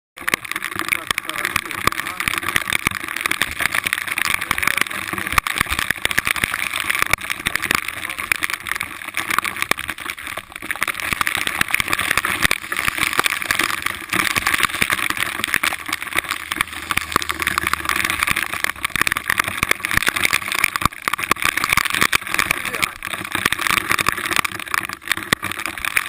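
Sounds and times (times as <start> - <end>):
off-road vehicle engine running: 16.0 - 20.4.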